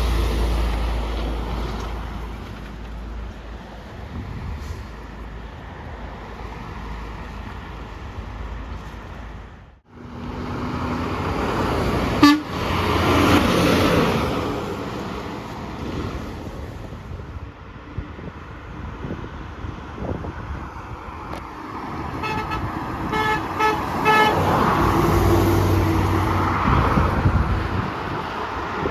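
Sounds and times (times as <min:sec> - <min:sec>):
passing truck rumble: 0:00.0 - 0:28.9
traffic noise: 0:00.0 - 0:28.9
vehicle horn toot: 0:12.2 - 0:12.6, 0:22.2 - 0:24.4.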